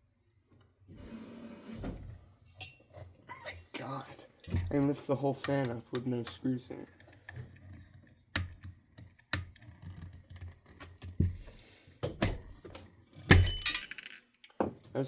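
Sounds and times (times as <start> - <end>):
metal jangling clatter: 13.3 - 14.2
metal parts knocking: 13.3 - 14.2.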